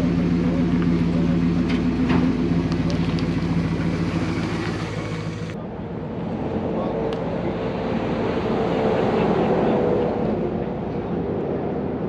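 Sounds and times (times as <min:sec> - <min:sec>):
car engine running: 0:00.0 - 0:05.6.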